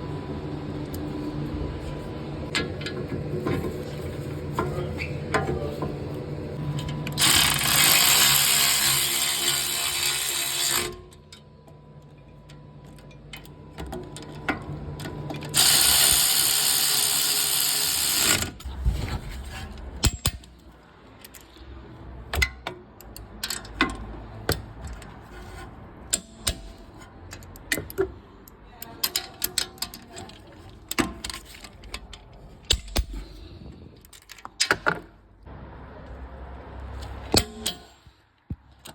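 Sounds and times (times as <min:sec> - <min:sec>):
ratchet clicking: 0:07.2 - 0:11.0, 0:15.5 - 0:18.6
metal clicks and clanks: 0:19.8 - 0:20.6, 0:22.2 - 0:35.1, 0:37.0 - 0:38.9.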